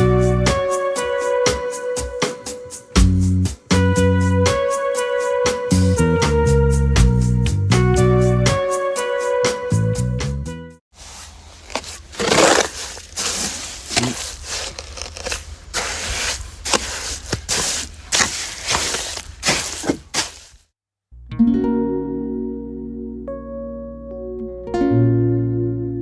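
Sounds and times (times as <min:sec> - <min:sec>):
background music: 0:00.0 - 0:10.8.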